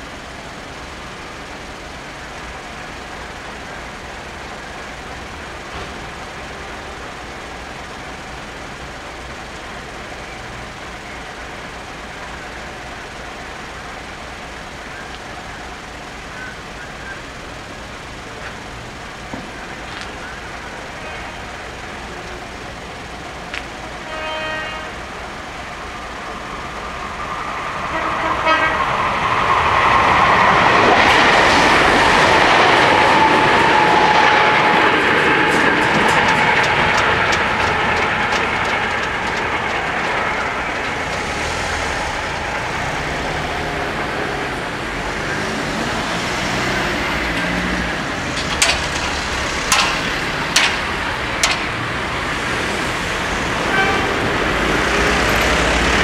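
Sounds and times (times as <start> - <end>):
electric train passing: 0.0 - 56.0
wheels clicking over rails: 0.0 - 56.0
train horn toots: 23.8 - 25.2, 27.9 - 29.1, 53.6 - 54.5
car tyres knocking on rails: 30.2 - 43.5, 46.6 - 56.0.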